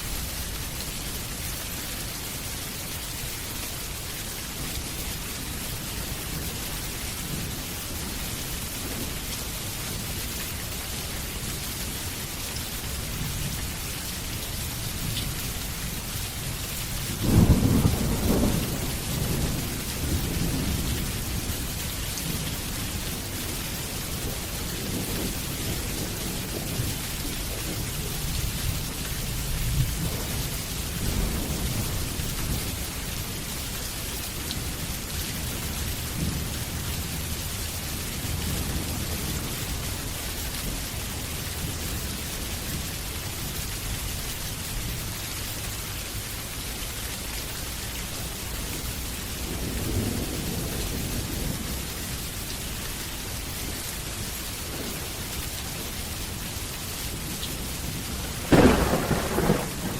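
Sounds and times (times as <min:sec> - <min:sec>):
heavy rain falling: 0:00.0 - 0:59.9
low thunder rolls: 0:17.2 - 0:22.4, 0:57.1 - 0:59.9.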